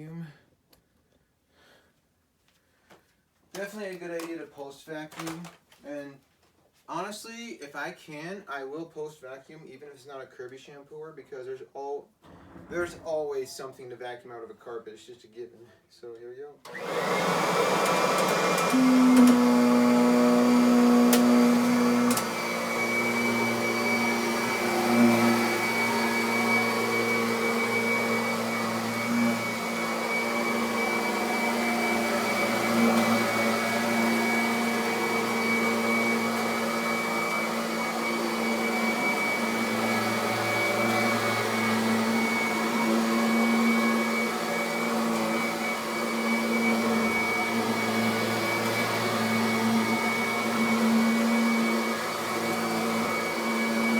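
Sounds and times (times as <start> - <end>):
vacuum cleaner running on carpet: 16.7 - 53.9.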